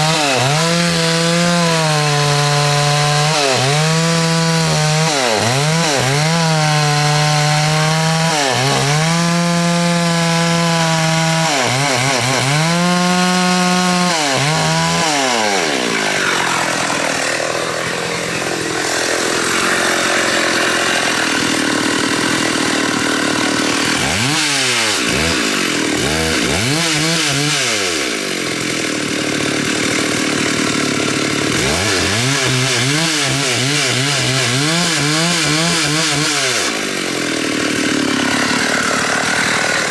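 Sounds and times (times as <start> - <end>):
chainsaw cutting wood: 0.0 - 39.9
chainsaw revving: 0.0 - 39.9.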